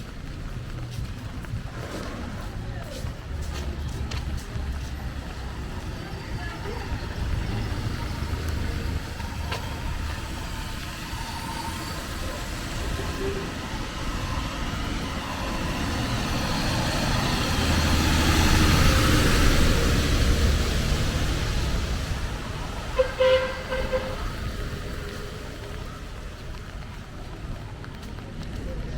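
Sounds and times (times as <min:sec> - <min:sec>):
motor vehicle passing by: 0:00.1 - 0:28.9
vehicle horn toot: 0:22.9 - 0:24.4.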